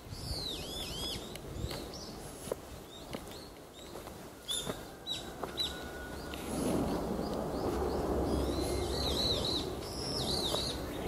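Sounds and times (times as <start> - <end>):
small birds chirping: 0.0 - 11.0
low rushing noise: 5.7 - 11.0.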